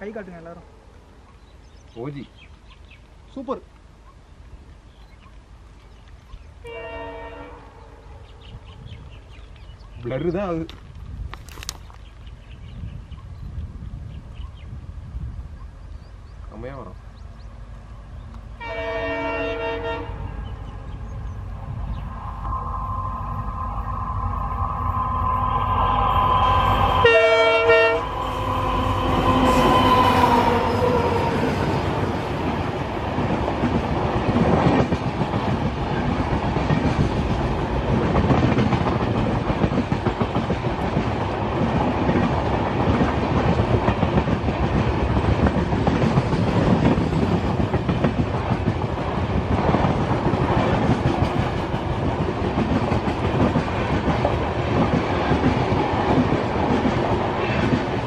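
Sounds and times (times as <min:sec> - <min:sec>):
train horn: 0:06.6 - 0:08.2, 0:18.6 - 0:20.8, 0:22.0 - 0:31.8
train wheels rumbling on rails: 0:08.3 - 0:58.0.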